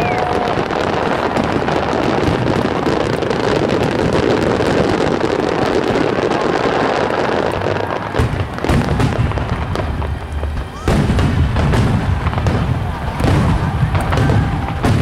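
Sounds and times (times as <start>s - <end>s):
fireworks rumble: 0.0s - 15.0s
sharp firework bang: 7.6s - 15.0s.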